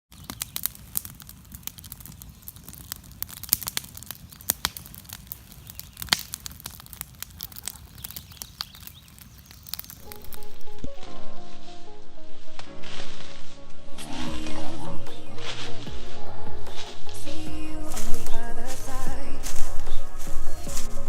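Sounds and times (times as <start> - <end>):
campfire crackling: 0.1 - 21.0
music: 10.0 - 21.0.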